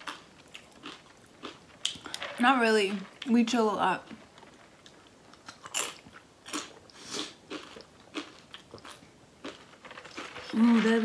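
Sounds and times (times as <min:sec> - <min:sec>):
chewing crunchy chip: 0:00.0 - 0:02.2, 0:05.4 - 0:10.6.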